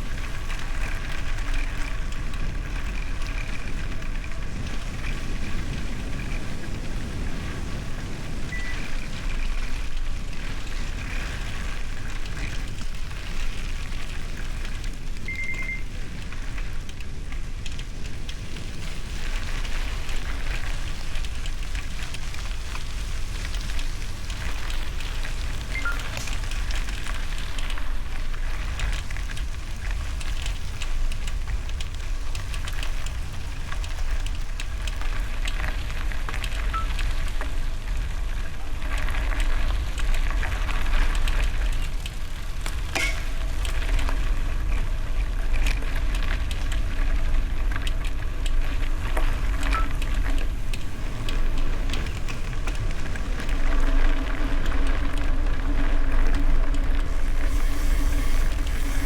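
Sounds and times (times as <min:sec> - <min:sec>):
bicycle tyres on gravel: 0:00.0 - 0:59.0
wind on microphone: 0:48.2 - 0:59.0.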